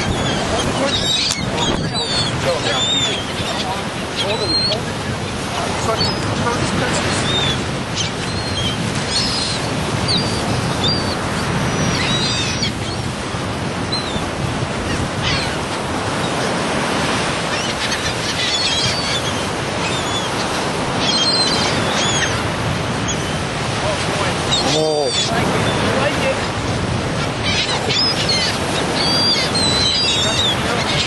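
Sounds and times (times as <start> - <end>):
seagull cries: 0.0 - 4.8, 7.2 - 13.0, 14.9 - 16.5, 17.4 - 23.4, 27.2 - 31.0
surf: 0.0 - 31.0
wind: 0.0 - 31.0.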